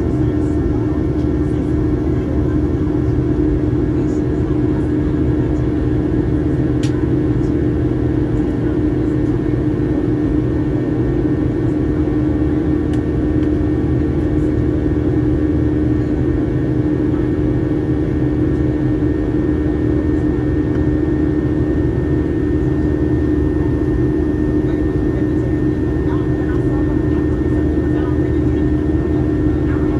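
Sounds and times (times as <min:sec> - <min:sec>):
jet engine cabin drone: 0:00.0 - 0:29.9.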